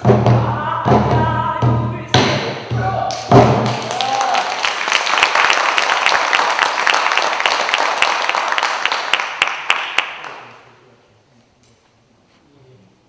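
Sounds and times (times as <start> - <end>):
audience applause: 3.6 - 10.6.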